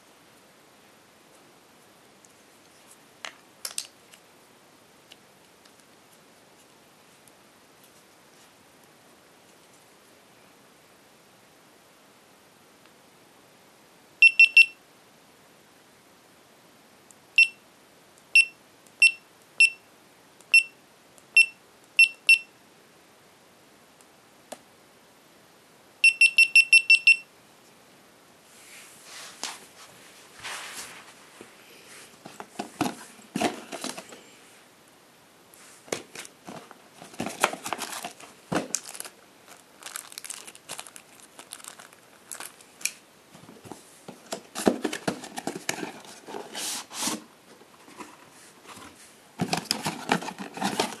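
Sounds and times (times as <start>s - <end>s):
packaging crinkling and rustling: 32.2s - 34.2s, 35.9s - 47.2s, 47.8s - 51.0s.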